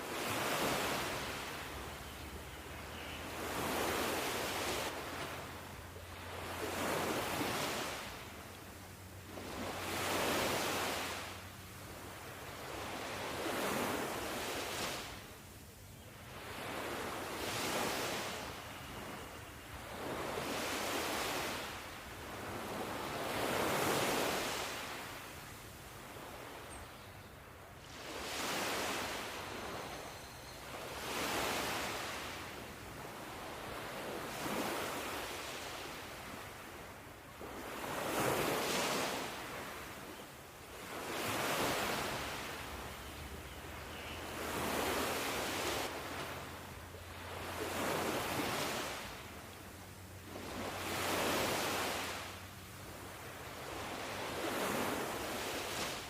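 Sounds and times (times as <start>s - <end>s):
ocean waves washing ashore: 0.0s - 56.0s.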